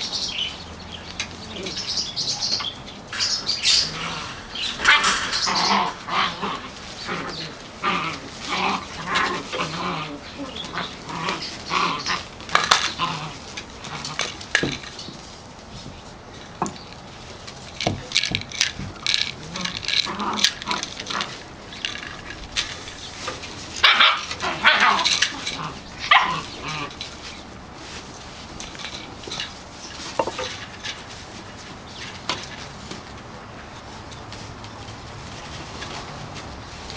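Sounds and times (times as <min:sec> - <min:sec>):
puppies yipping and whimpering: 0:01.5 - 0:13.5.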